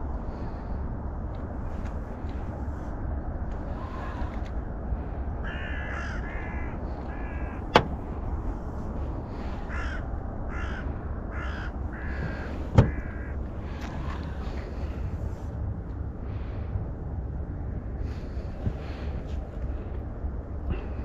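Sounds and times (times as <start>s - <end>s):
low rumble: 0.0s - 21.0s
sharp knocks: 12.2s - 13.1s.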